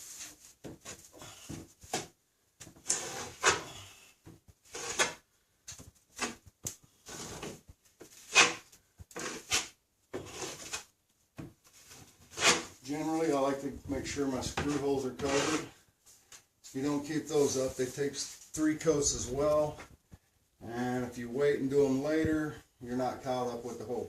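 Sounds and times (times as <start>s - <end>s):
taping knife scraping compound: 0.0s - 5.3s, 6.1s - 10.9s, 11.8s - 13.0s, 14.6s - 15.8s.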